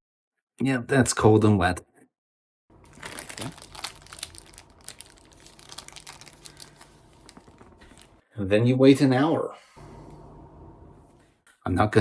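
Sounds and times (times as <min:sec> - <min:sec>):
plastic booties crinkling: 0:02.8 - 0:08.2.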